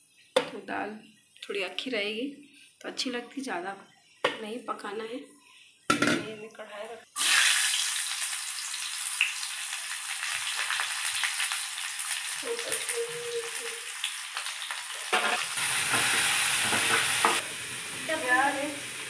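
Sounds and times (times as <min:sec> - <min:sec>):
onions sizzling in hot oil: 0:07.2 - 0:19.0
vegetables sizzling in pan: 0:07.2 - 0:19.0.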